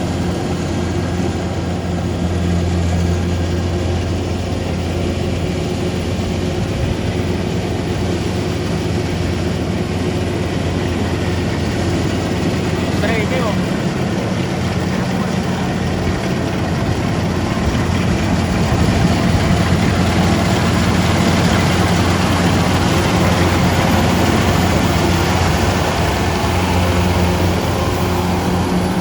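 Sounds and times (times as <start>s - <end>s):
harvester engine droning: 0.0s - 29.0s.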